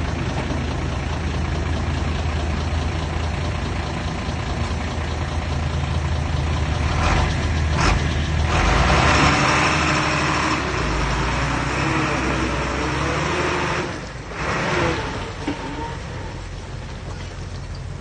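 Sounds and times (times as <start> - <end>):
heavy engine idling: 0.0 - 18.0.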